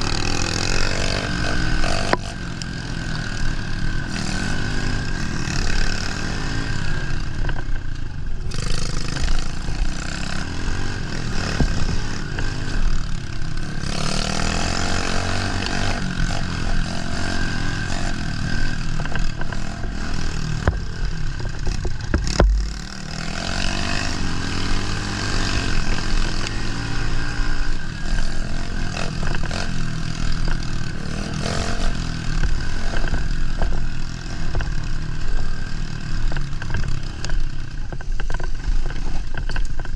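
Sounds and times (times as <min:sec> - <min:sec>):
motorbike engine revving: 0:00.0 - 0:39.9
bike clattering over rough ground: 0:20.6 - 0:22.9.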